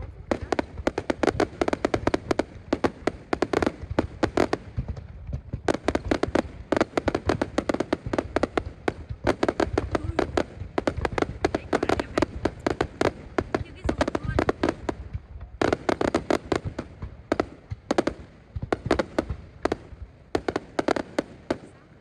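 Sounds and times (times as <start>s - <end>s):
fireworks popping and cracking: 0.0s - 22.0s.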